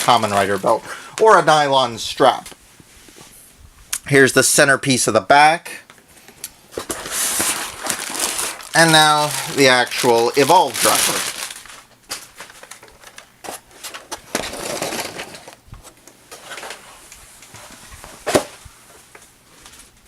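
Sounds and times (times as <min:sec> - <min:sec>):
packaging rustling: 0:06.7 - 0:15.6.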